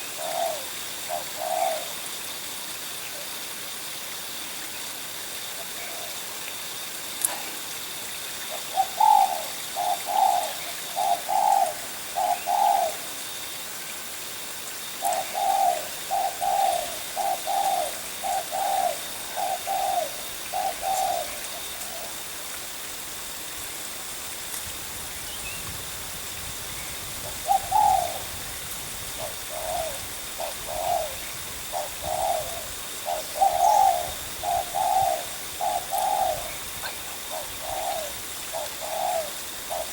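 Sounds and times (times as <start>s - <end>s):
dove cooing: 0.0s - 2.0s, 8.5s - 13.1s, 15.0s - 22.2s, 27.2s - 28.4s, 29.1s - 39.9s.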